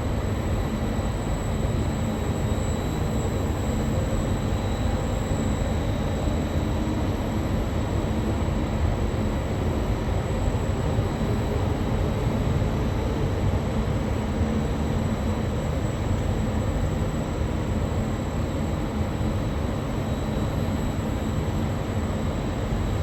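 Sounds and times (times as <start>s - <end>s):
faint high whine: 15.9s - 23.0s.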